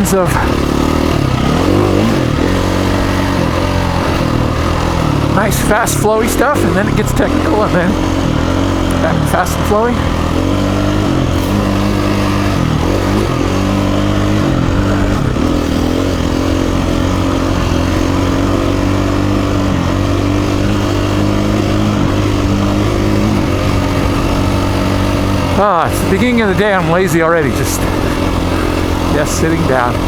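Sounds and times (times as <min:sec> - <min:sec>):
dirt bike engine running: 0:00.0 - 0:30.0.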